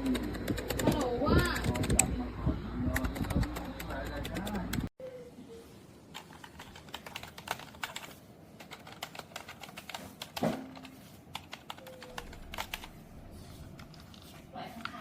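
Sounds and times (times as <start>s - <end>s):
keyboard keys clicking: 0.0s - 2.1s, 2.9s - 4.9s, 6.1s - 13.0s.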